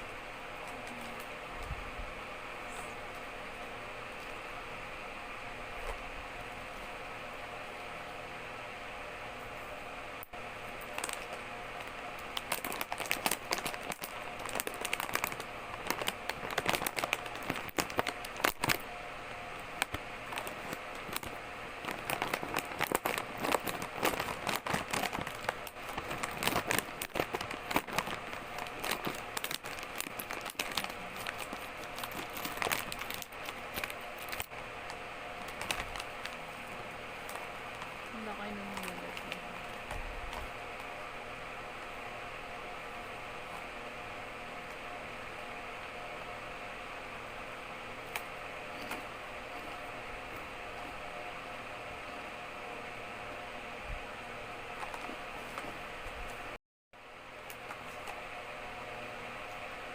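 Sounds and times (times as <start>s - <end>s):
crackers and packet crinkling: 10.2s - 18.9s, 19.5s - 41.0s, 48.0s - 51.0s.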